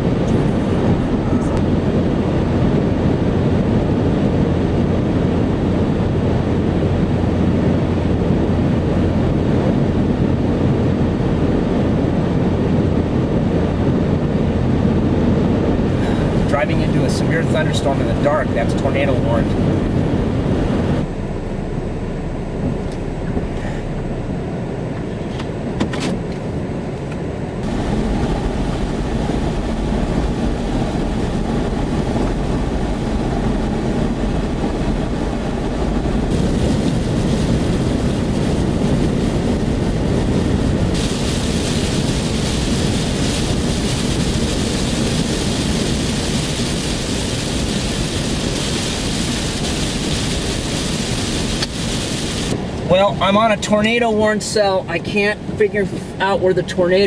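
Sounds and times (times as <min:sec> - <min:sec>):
road and engine rumble: 0:00.0 - 0:57.0
rain hissing on car: 0:15.9 - 0:20.6, 0:27.6 - 0:53.0.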